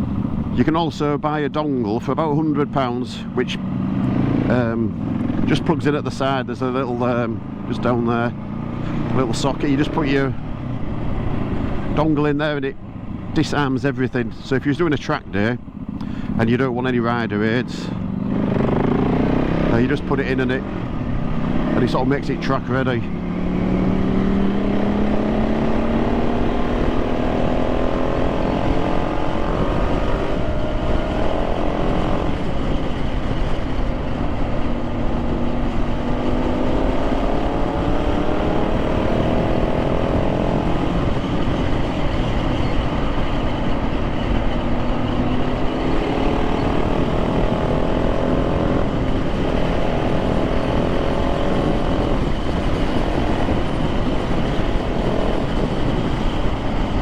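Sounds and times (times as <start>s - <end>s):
motorcycle engine accelerating: 0.0s - 1.2s, 1.8s - 57.0s
wind rush on microphone: 22.8s - 57.0s.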